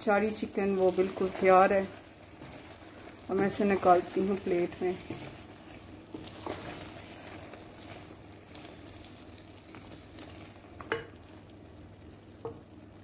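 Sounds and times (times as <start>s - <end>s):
wooden spoon stirring: 0.0s - 11.3s
curry sizzling in a pan: 0.0s - 13.0s
spoon knocking against pan: 10.8s - 11.2s.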